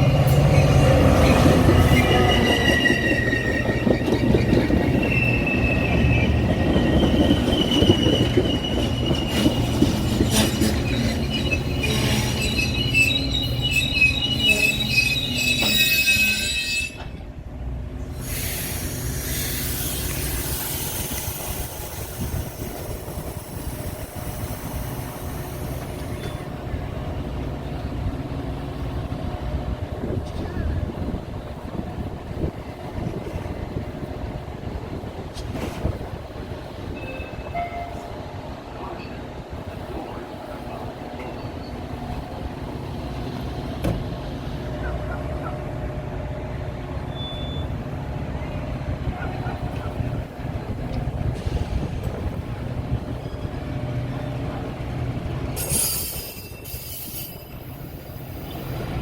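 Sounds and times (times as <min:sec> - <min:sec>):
train rumbling and clattering: 0:00.0 - 0:59.0
train wheels squealing: 0:00.2 - 0:17.2, 0:18.1 - 0:26.8, 0:36.9 - 0:38.1, 0:41.2 - 0:42.0, 0:47.0 - 0:47.9, 0:53.0 - 0:54.4, 0:55.6 - 0:59.0.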